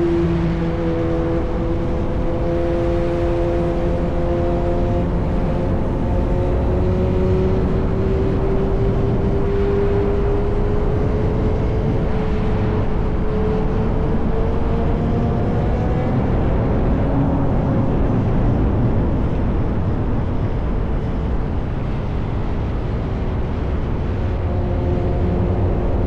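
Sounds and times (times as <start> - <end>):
steady rushing noise: 0.0 - 26.0.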